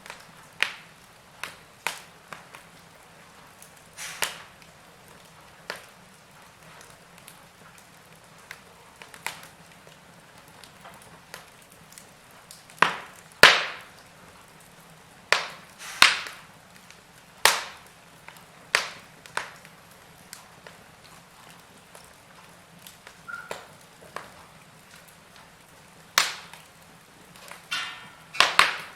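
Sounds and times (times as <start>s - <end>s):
loud sharp pops: 0.0s - 2.7s, 4.0s - 4.7s, 12.7s - 14.0s, 15.3s - 16.5s, 17.4s - 19.7s, 26.2s - 26.7s, 27.4s - 28.9s
wood fire crackling: 0.0s - 28.9s.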